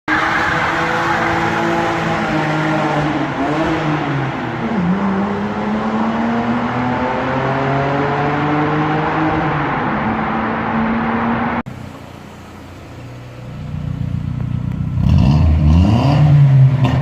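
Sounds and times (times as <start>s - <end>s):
car engine under load: 0.1s - 17.0s.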